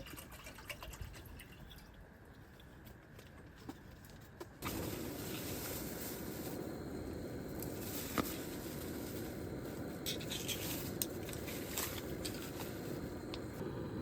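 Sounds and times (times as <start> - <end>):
handling clicks and scrapes: 7.6 - 13.5.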